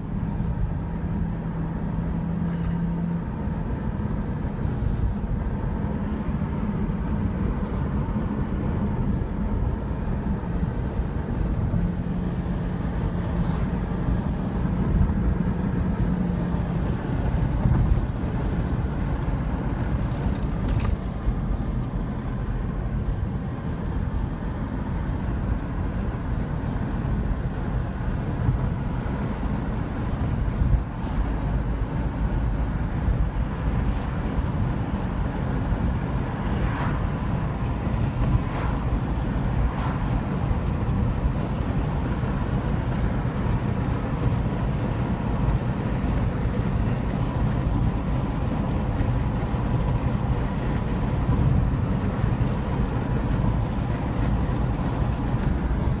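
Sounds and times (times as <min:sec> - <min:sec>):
train wheels rumbling on track: 0:30.2 - 0:56.0.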